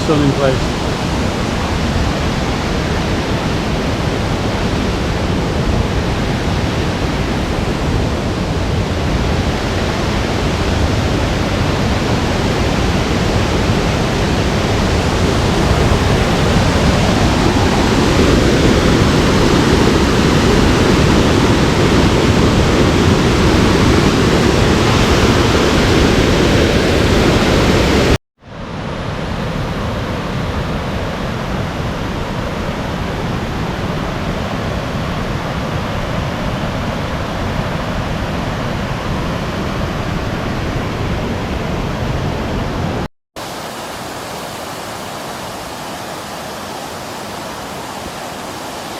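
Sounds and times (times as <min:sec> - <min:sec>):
waterfall rushing: 0:00.0 - 0:28.2, 0:42.4 - 0:48.9.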